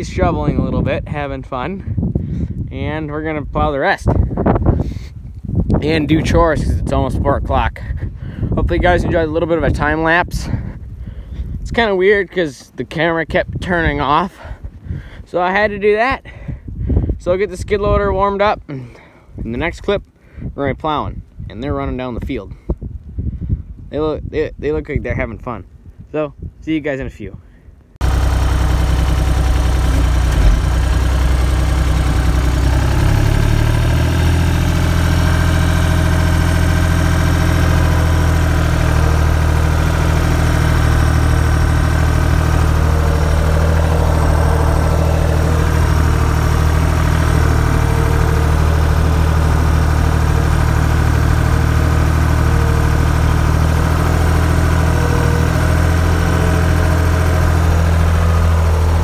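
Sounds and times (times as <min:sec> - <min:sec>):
skid steer engine idling: 0:28.0 - 0:59.0.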